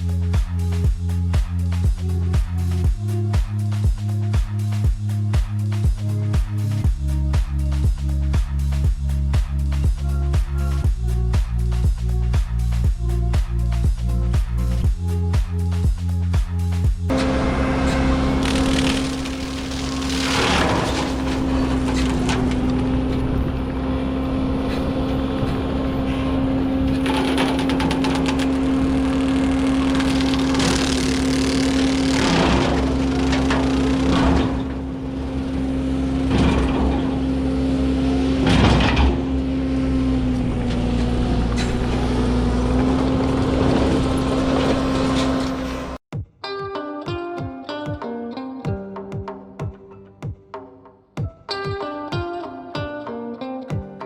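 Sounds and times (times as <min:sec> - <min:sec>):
diesel engine and hydraulic cutter: 0:17.1 - 0:46.0
brush crashing and crackling: 0:18.3 - 0:22.6.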